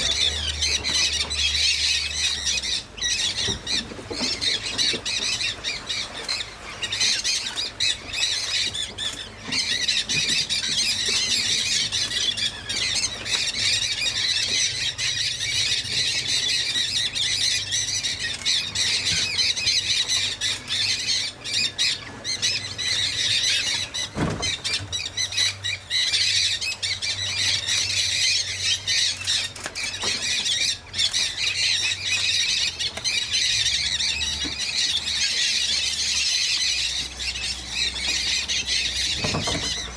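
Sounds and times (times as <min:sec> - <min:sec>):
parrots squawking and screeching: 0:00.0 - 0:39.9.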